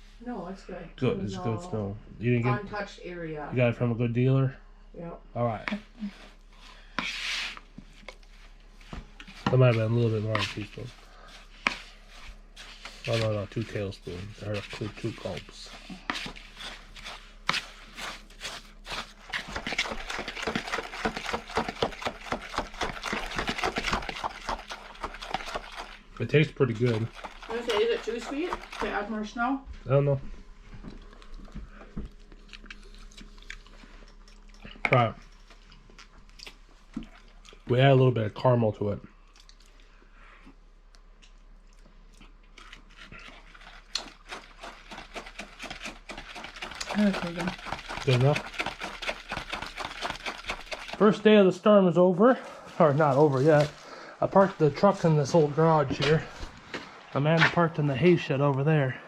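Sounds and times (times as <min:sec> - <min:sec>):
spoon scraping snow in a bowl: 0:06.9 - 0:08.5, 0:09.2 - 0:26.0, 0:26.6 - 0:29.2, 0:43.1 - 0:51.1.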